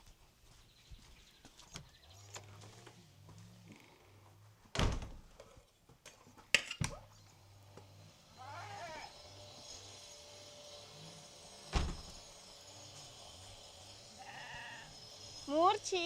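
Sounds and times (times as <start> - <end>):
loud thumps: 11.7 - 12.2.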